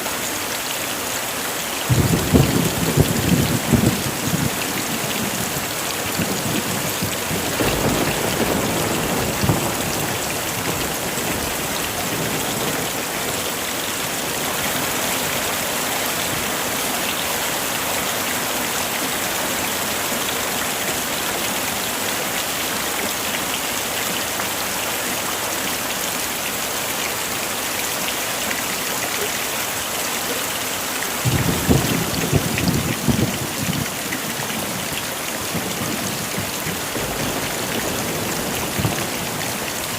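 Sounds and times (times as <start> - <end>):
heavy rain falling: 0.0 - 39.9
thunder rumbling: 1.9 - 13.4, 31.2 - 39.9.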